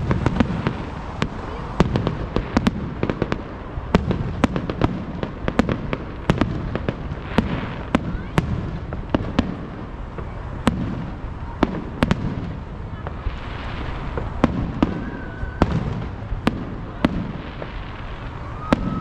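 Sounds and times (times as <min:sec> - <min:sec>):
firework bangs and cracks: 0:00.0 - 0:19.0.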